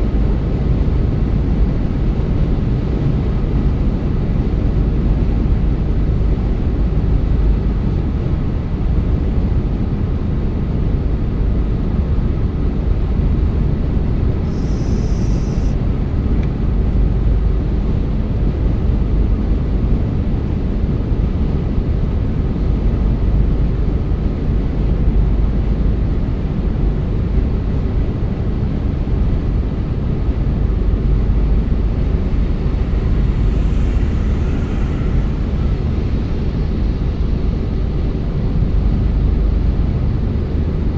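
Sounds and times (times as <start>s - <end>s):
car tyres and engine rumble: 14.4s - 18.6s, 29.6s - 40.1s
faint hiss: 14.5s - 15.8s, 31.6s - 38.0s.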